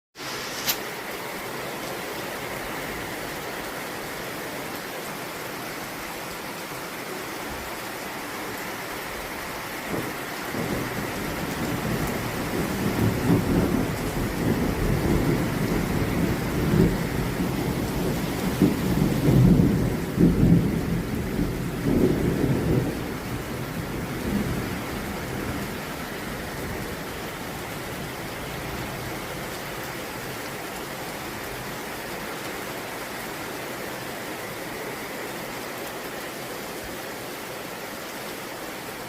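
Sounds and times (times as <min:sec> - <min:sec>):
heavy rain: 0:00.2 - 0:39.0
rolling thunder: 0:09.9 - 0:25.8.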